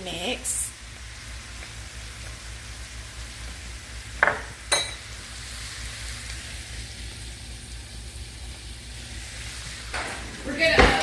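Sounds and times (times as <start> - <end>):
meat sizzling in a pan: 0.0 - 10.0
sharp knocks: 10.0 - 11.0.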